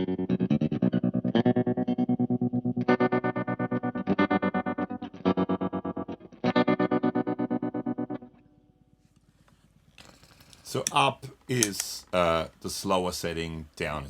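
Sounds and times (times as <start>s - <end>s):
electric guitar tremolo chords: 0.0s - 8.8s.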